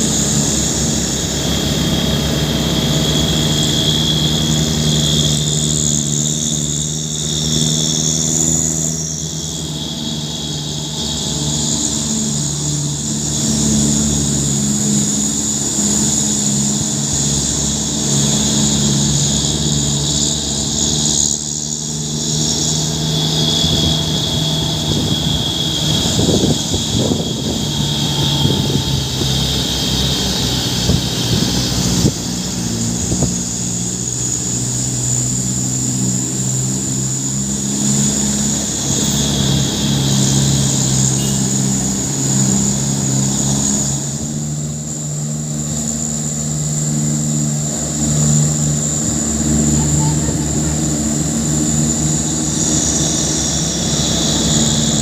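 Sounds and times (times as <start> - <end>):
diesel truck engine droning: 0.0 - 55.0.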